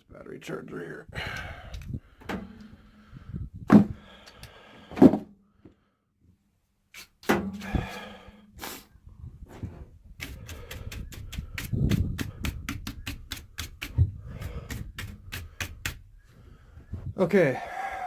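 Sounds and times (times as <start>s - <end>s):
sharp knocks and clunks: 2.2s - 2.7s, 3.7s - 4.0s, 4.9s - 5.3s, 7.2s - 7.8s.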